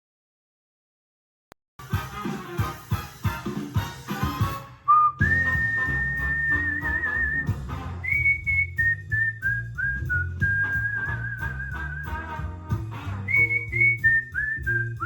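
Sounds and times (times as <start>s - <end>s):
whistled melody with vibrato: 4.9s - 12.3s, 13.3s - 15.0s
backing track with bass line: 5.2s - 15.0s.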